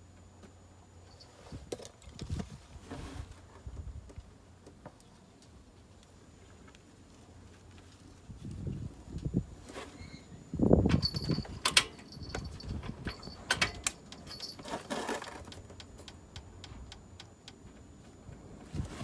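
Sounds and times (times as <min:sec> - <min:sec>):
tools clicking and clinking: 0:10.9 - 0:16.2.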